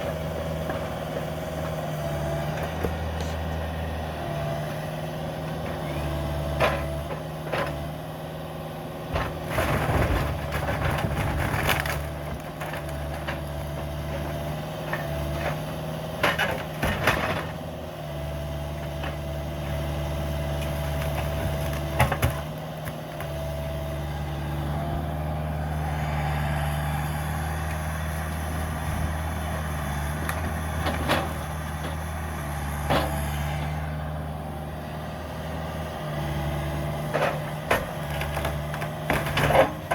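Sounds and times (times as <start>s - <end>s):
excavator diesel engine running: 0.0s - 39.9s
wood and debris cracking: 9.3s - 15.6s, 20.6s - 23.5s, 37.1s - 39.9s.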